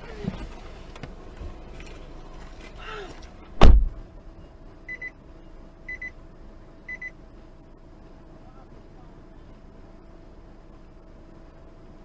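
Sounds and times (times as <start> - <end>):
electronic warning chime beeps: 4.9 - 5.2, 5.9 - 6.1, 6.9 - 7.1.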